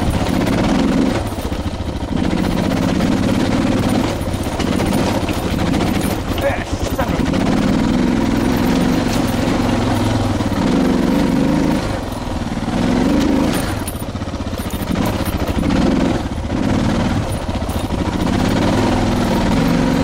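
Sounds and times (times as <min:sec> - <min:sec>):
motorcycle engine thumping: 0:00.0 - 0:20.0.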